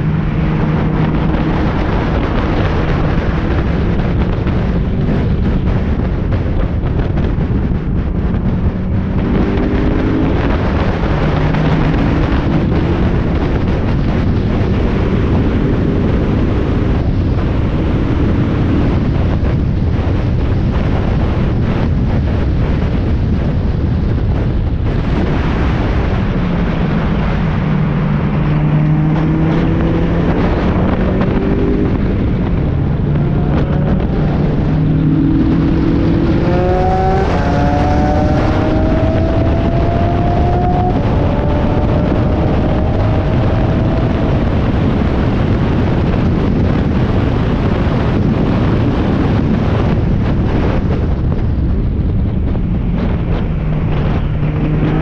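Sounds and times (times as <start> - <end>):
road noise: 0.0 - 55.0
wind noise: 0.0 - 55.0
race car engine accelerating: 26.3 - 46.2, 52.9 - 55.0.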